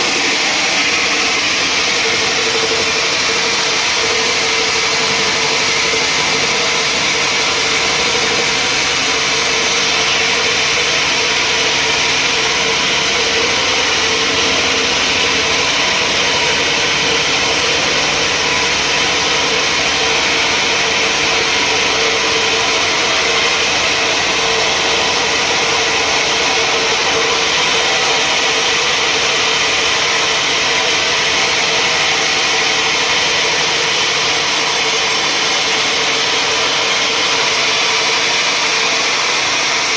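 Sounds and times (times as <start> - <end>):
sawmill machinery whine and hiss: 0.0 - 39.9.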